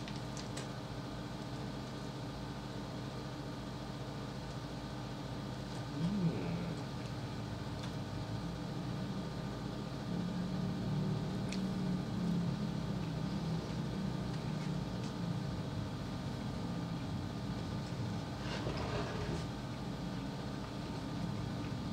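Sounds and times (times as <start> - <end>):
low hum with hiss: 0.0 - 21.9
man chewing food: 19.4 - 21.9.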